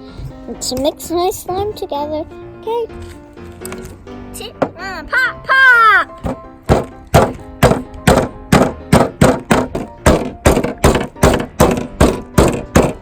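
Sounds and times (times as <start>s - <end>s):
rapid sharp knocks: 6.2s - 13.0s.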